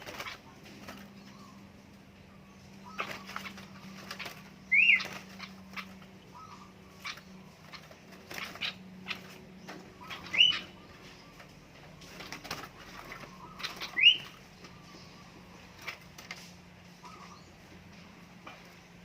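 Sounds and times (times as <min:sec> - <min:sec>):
birds fluttering and rustling: 0:00.0 - 0:19.0
sharp rising bird chirps: 0:02.5 - 0:11.6, 0:12.9 - 0:15.7.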